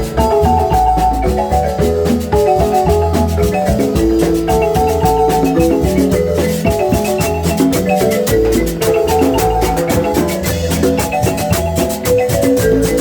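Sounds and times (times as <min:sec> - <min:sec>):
marimba music: 0:00.0 - 0:13.0.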